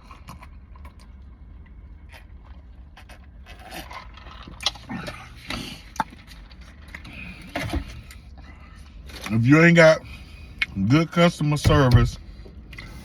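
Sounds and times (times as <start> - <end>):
chewing and mouth clicks: 0.0 - 8.2
low steady hum: 0.0 - 13.0.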